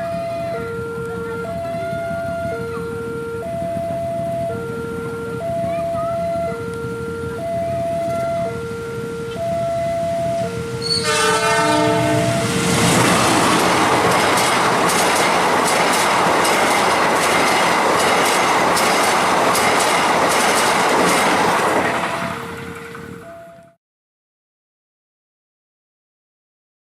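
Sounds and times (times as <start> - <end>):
locomotive horn: 0.0 - 14.6, 21.8 - 23.7
train passing at speed: 0.0 - 23.6
train wheels clacking: 10.8 - 23.2.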